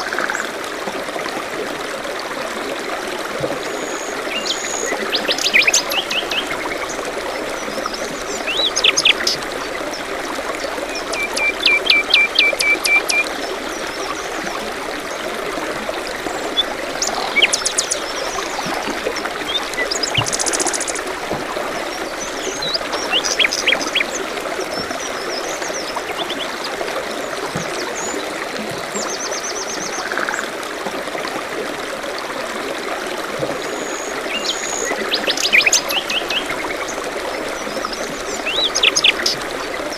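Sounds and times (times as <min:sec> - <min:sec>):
stream trickling: 0:00.0 - 0:39.9
songbirds chirping: 0:03.9 - 0:28.4.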